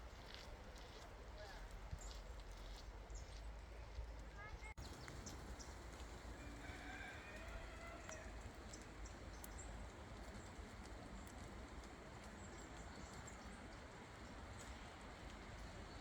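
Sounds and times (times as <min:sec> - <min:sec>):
soft ticks of drips or steps: 0:00.1 - 0:16.0
light rain hiss: 0:04.8 - 0:16.0.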